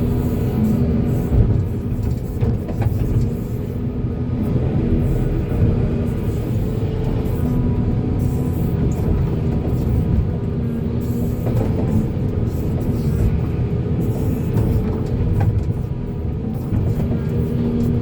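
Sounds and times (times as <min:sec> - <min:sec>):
excavator diesel engine rumbling: 0:00.0 - 0:18.0.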